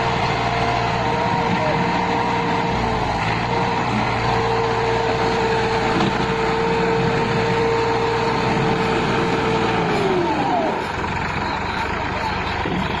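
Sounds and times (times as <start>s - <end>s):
engine whine: 0.0s - 13.0s
tractor diesel engine: 0.0s - 13.0s.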